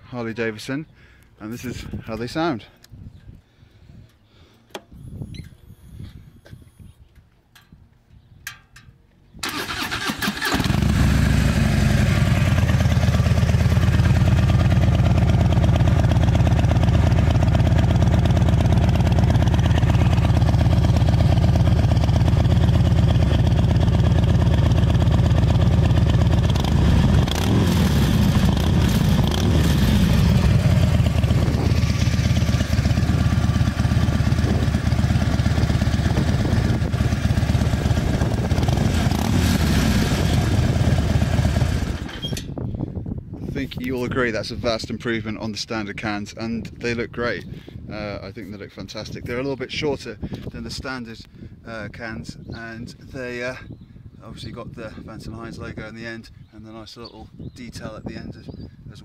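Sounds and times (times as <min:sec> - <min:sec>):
motorcycle engine idling and revving: 0:09.7 - 0:42.5.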